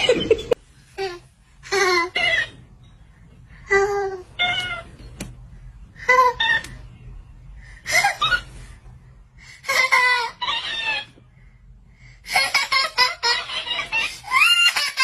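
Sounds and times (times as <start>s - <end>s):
baby squealing and laughing: 9.7s - 11.1s, 13.2s - 15.0s.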